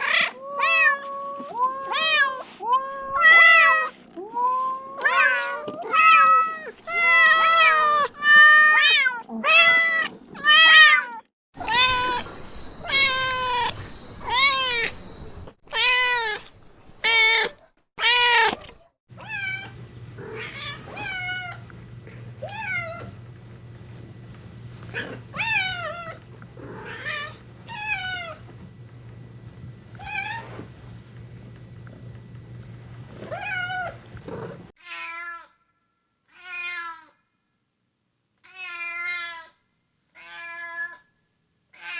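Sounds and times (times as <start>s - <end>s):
cats and kittens meowing: 0.0s - 15.1s, 15.7s - 35.5s
faint high whine: 11.6s - 15.6s, 19.2s - 34.4s
steady low hum: 19.1s - 34.7s.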